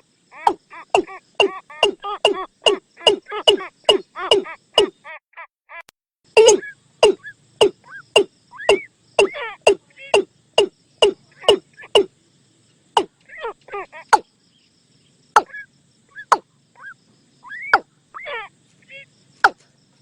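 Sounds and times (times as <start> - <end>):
watercock calls: 0.3 - 5.0, 6.4 - 12.1, 15.4 - 19.6.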